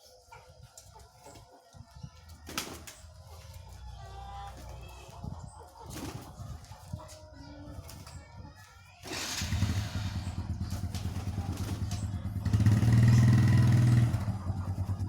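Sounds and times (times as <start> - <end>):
pigeons flapping wings: 2.5 - 3.1, 5.9 - 6.4, 9.1 - 14.4
motorbike engine running: 9.1 - 15.0
pigeons cooing: 9.1 - 15.0.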